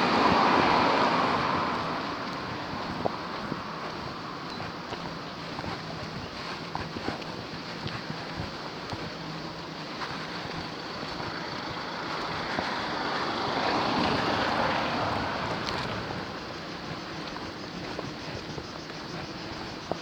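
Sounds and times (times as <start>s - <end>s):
vehicle passing by: 0.0s - 4.4s, 10.8s - 18.0s
traffic background: 0.0s - 20.0s.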